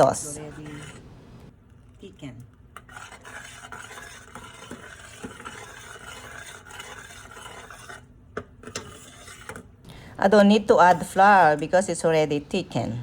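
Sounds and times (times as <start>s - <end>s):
stirring clicks: 0.0s - 9.9s.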